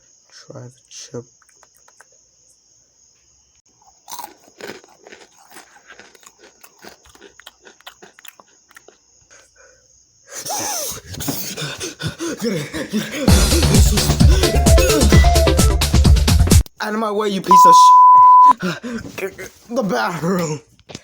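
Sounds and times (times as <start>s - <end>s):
chips crunching while chewed: 3.7s - 9.4s
person wheezing and coughing: 10.4s - 15.0s.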